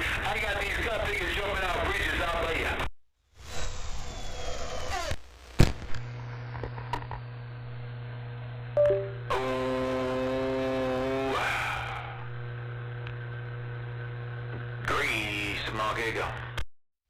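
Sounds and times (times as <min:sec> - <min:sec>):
two-note beep: 0:08.8 - 0:09.3.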